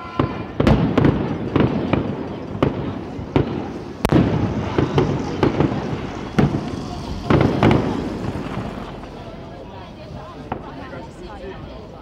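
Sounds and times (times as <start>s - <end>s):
firework shells bursting: 0.2s - 9.2s.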